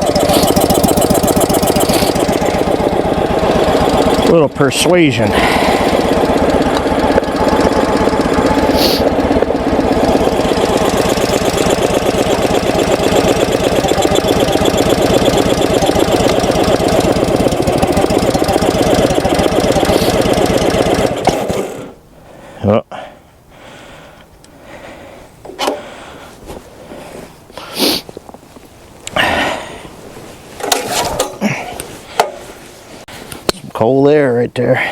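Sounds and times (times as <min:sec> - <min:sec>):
small gasoline engine running: 0:00.0 - 0:22.1, 0:30.6 - 0:32.4.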